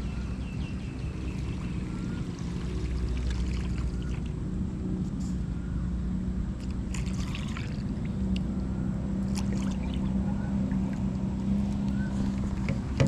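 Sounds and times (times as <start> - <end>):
motorboat engine droning: 0.0 - 13.0
water splashes and drips: 0.9 - 4.3, 6.6 - 8.5, 9.2 - 13.0.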